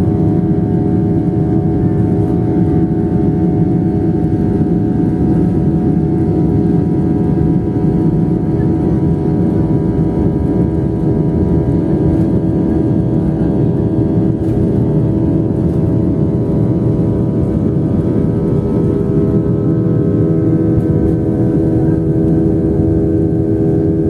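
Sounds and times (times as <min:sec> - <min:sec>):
jet engines rumbling: 0:00.0 - 0:24.0
multi-tone engine hum: 0:00.0 - 0:24.0.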